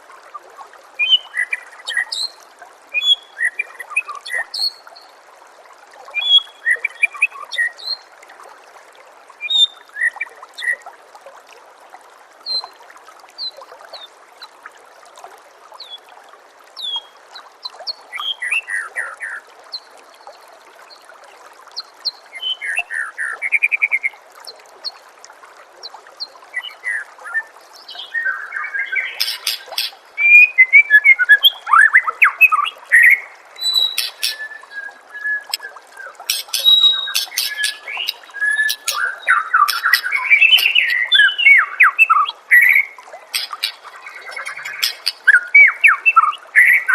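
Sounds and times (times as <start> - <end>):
water trickling: 0.0 - 46.9
bird whistles and trills: 28.0 - 46.9.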